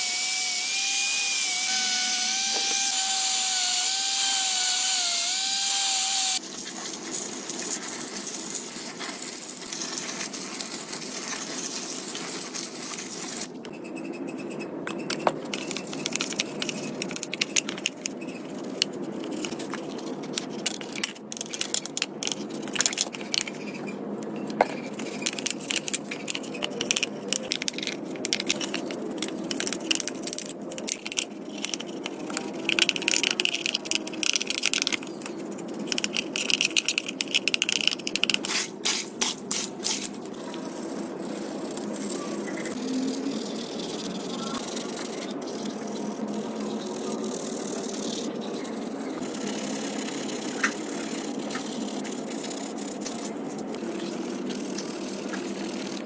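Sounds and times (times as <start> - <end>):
small power tool whining: 0.0 - 6.4
metal parts scraping and clinking: 14.9 - 56.0.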